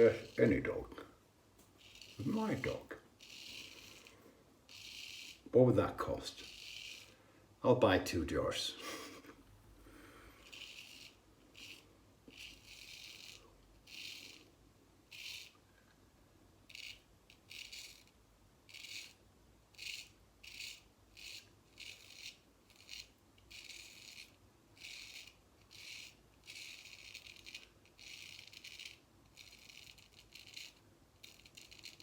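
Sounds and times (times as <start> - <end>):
razor scraping stubble: 0.0 - 7.2, 10.0 - 14.4, 19.8 - 32.0.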